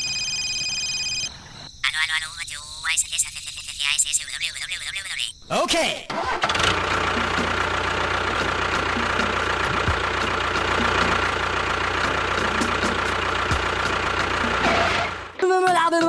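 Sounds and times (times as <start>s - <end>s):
engine idling: 6.1s - 15.4s.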